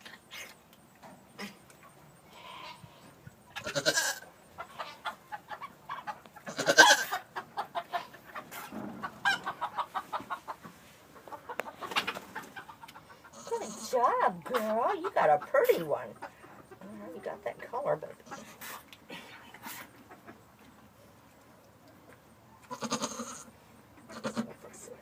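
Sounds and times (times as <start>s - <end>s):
chickens clucking: 0.0s - 25.0s
goat calling: 2.3s - 8.2s, 12.9s - 14.1s, 22.6s - 24.7s.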